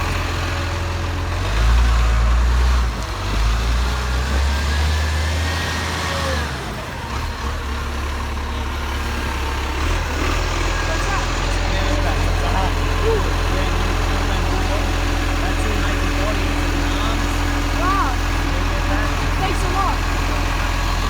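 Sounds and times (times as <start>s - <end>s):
garbage truck engine running: 0.0s - 21.0s.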